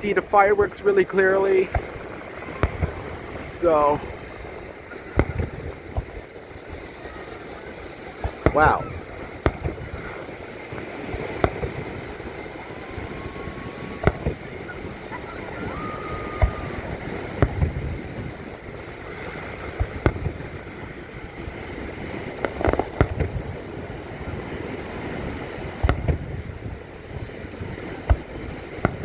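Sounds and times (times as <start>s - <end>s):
fireworks exploding: 0.0s - 29.0s
outdoor background noise: 0.0s - 29.0s
faint whistling tones: 12.1s - 17.5s.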